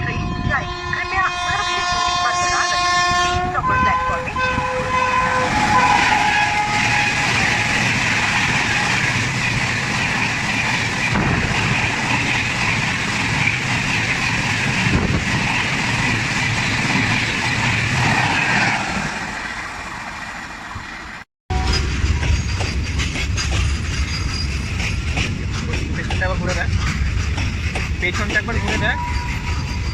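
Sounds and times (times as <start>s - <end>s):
train horn: 0.0s - 8.9s, 28.6s - 29.5s
train wheels rushing on rails: 0.0s - 29.9s.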